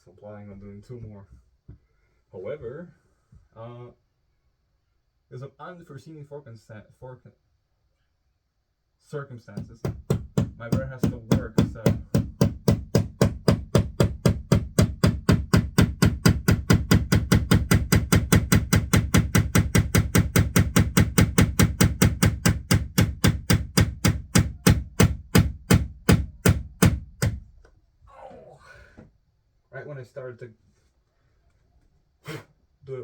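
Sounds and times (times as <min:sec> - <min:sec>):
hammer driving nail into wall: 0:09.6 - 0:27.5.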